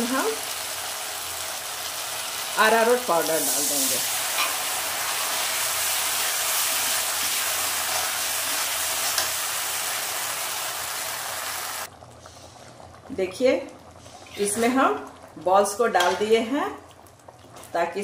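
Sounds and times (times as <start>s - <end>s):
onions sizzling in a pan: 0.0s - 18.0s
metal spatula scraping: 4.3s - 4.8s, 14.2s - 14.7s.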